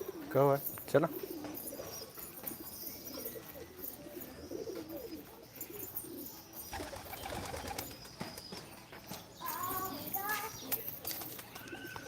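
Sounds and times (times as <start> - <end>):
pigeons cooing: 0.0 - 7.9.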